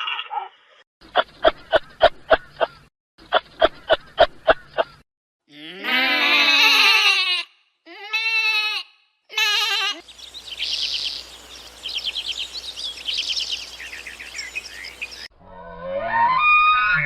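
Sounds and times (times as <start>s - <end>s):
birdsong: 0.6s - 5.0s, 9.9s - 15.3s
shaky bleats: 5.5s - 10.0s.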